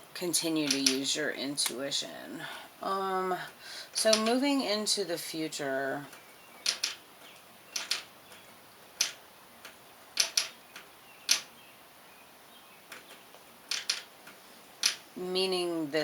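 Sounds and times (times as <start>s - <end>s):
cards snapping and tapping: 6.7s - 7.0s, 7.8s - 8.4s, 9.0s - 11.5s, 12.9s - 15.0s.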